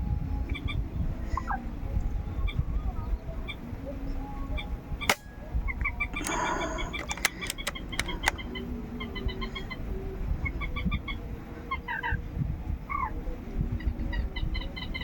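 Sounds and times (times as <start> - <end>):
bird calls: 2.4 - 12.2
sharp clicks: 5.0 - 8.4.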